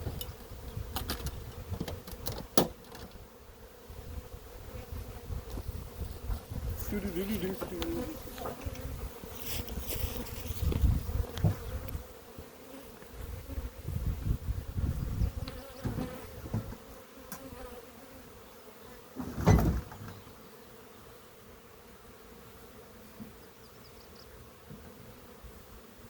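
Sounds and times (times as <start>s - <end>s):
honeybees buzzing: 0.0s - 26.0s.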